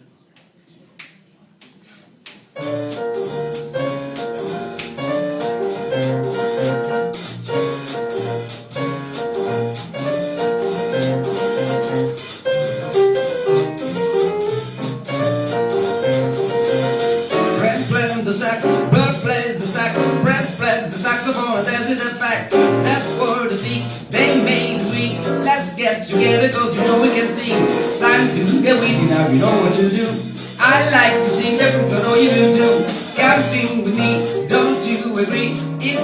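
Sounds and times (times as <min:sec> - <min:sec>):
finger snaps: 0:00.4 - 0:02.5
bass notes: 0:02.6 - 0:36.0
piano chords: 0:02.6 - 0:36.0
person singing: 0:17.5 - 0:36.0
cymbal keeping time: 0:22.6 - 0:35.8.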